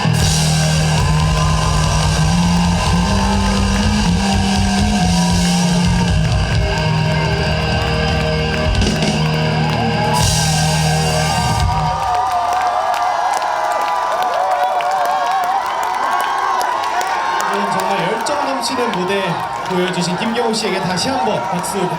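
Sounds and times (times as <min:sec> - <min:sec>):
low bass notes: 0:00.0 - 0:12.1
live rock band playing: 0:00.0 - 0:12.2.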